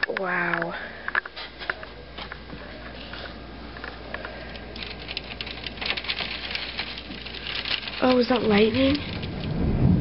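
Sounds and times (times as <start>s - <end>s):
hailstones pattering: 4.2s - 10.0s.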